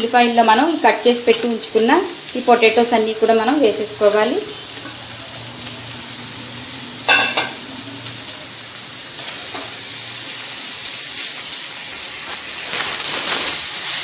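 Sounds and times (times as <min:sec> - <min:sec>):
potatoes sizzling in hot oil: 0:00.0 - 0:14.0
metal clank against pan: 0:07.1 - 0:07.6.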